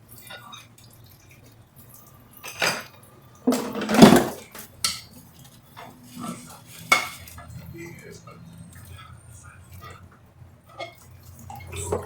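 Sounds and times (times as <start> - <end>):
dishes and pots clattering: 2.3 - 8.9, 10.7 - 12.0.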